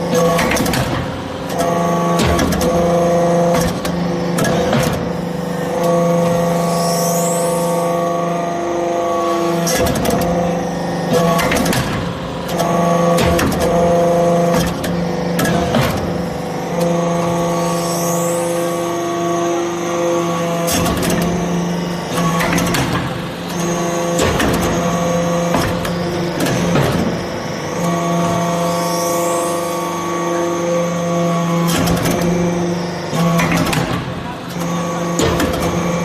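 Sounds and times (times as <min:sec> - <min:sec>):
machine knocks and clatter: 0:00.0 - 0:05.2, 0:11.1 - 0:13.8, 0:14.4 - 0:16.3, 0:22.1 - 0:27.2, 0:33.2 - 0:34.2, 0:35.1 - 0:36.0
hydraulic power unit hum: 0:00.0 - 0:36.0.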